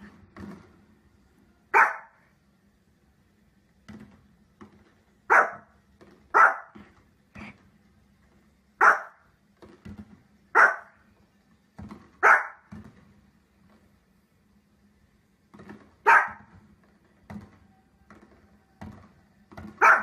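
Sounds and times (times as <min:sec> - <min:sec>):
small dog barking: 0:01.7 - 0:02.2, 0:05.3 - 0:05.7, 0:06.3 - 0:06.8, 0:08.8 - 0:09.2, 0:10.5 - 0:11.0, 0:12.2 - 0:12.7, 0:16.0 - 0:16.5, 0:19.7 - 0:20.0.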